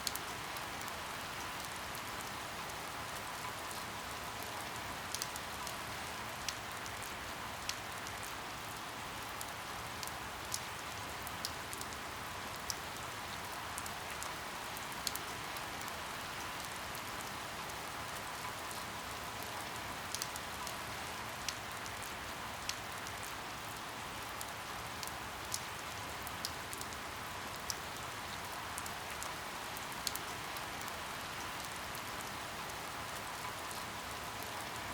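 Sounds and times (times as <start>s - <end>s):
raindrops ticking on surface: 0.0s - 34.9s.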